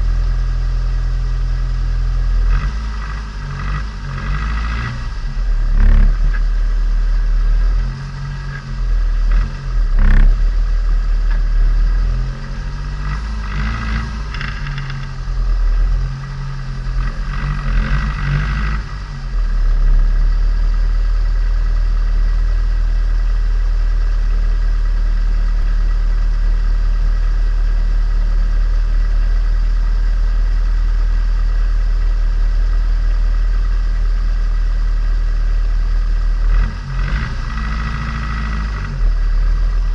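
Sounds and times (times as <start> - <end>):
car engine revving: 0.0 - 27.7, 35.9 - 39.9.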